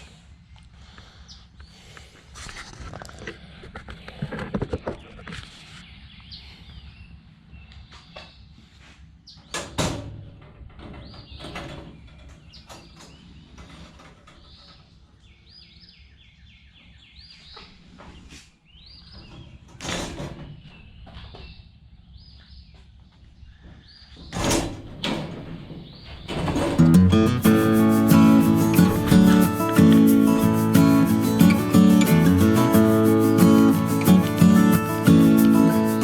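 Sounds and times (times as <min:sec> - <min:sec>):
loud rustling crashes: 0:26.3 - 0:32.5.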